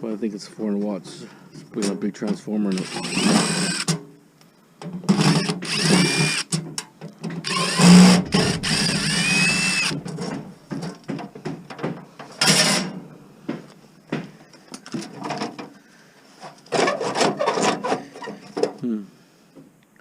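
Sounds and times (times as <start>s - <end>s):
power drill whining: 2.7s - 4.0s, 5.1s - 6.6s, 7.4s - 10.0s.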